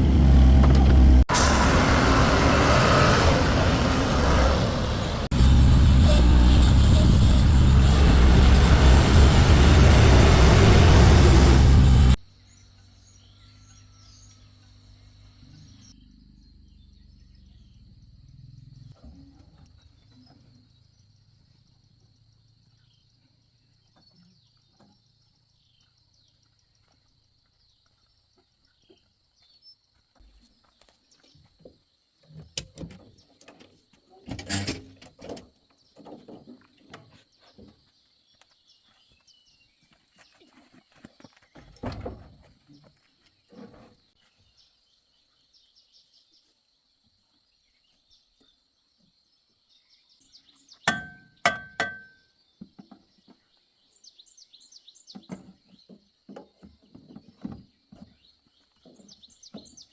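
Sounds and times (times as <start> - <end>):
loud vehicle noise: 0.0 - 12.2
low hum: 0.0 - 12.2.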